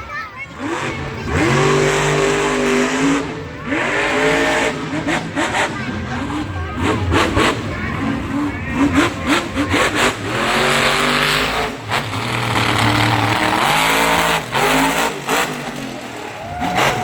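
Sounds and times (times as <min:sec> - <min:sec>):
truck engine revving: 0:00.0 - 0:17.0.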